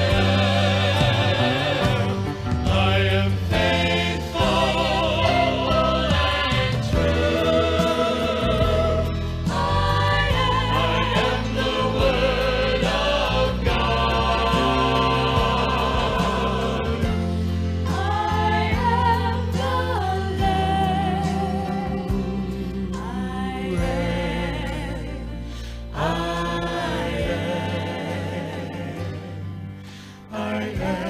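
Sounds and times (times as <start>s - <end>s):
instrumental accompaniment: 0.0s - 24.6s
gospel group singing: 0.0s - 31.0s.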